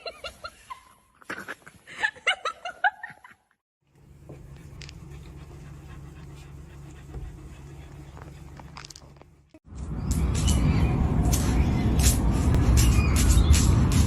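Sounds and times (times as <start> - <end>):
steady low hum: 3.8 - 12.9.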